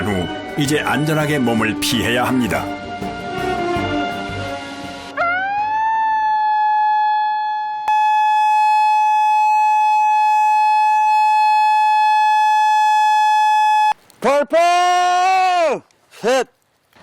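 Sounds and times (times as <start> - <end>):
warning siren: 5.1 - 14.0.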